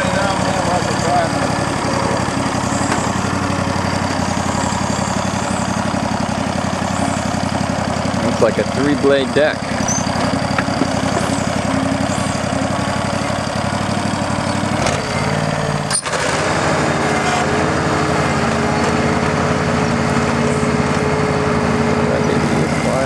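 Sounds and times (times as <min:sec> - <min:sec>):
garden tractor engine running: 0:00.0 - 0:23.0
steady whine: 0:14.8 - 0:23.0.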